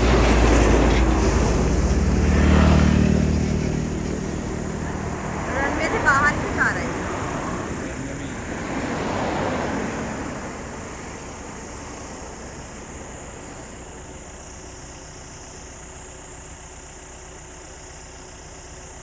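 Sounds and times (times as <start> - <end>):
airliner engine rushing: 0.0 - 14.5.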